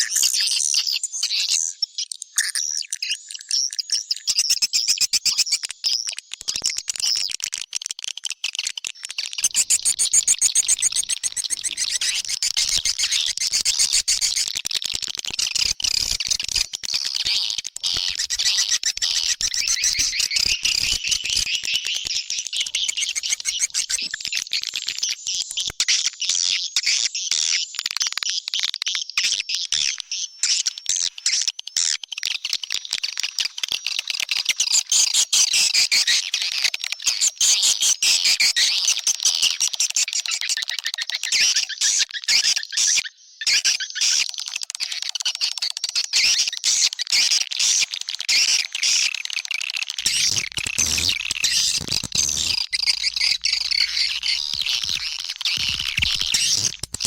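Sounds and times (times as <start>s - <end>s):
swiftlets chirping: 50.0s - 57.0s.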